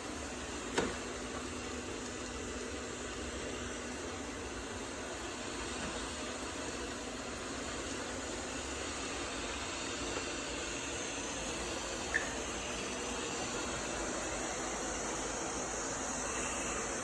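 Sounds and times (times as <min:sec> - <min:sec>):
robot vacuum whirring: 0:07.7 - 0:17.0.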